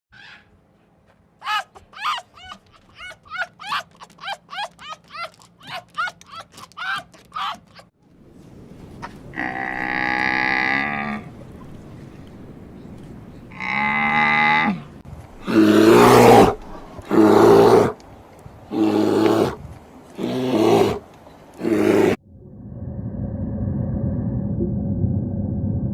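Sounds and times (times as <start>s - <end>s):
loud rough animal calls: 9.3s - 11.4s.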